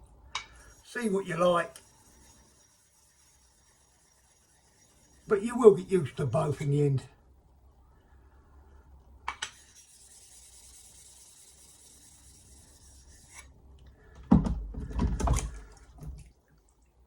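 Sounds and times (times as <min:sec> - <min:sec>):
heavy rubbing on whetstone: 0:00.5 - 0:05.7, 0:09.5 - 0:13.5.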